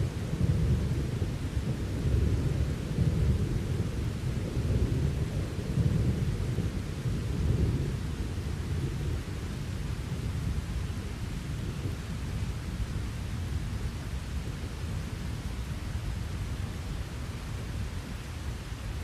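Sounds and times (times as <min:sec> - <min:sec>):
rolling thunder rumbling: 0:00.0 - 0:12.8.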